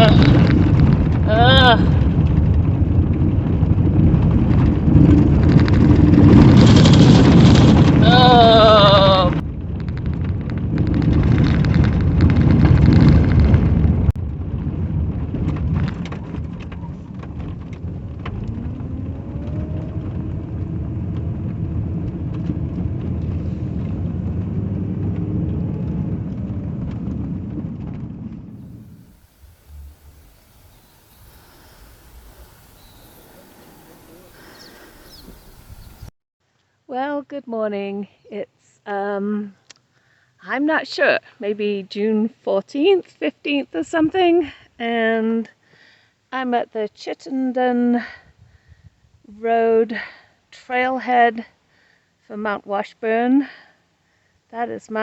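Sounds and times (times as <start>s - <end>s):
car rumbling over gravel: 0.0s - 8.0s, 9.4s - 36.1s.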